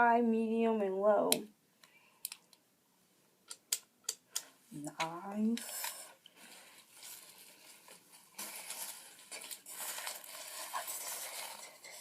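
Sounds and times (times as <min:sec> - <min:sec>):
packaging rustling: 0:05.6 - 0:12.0.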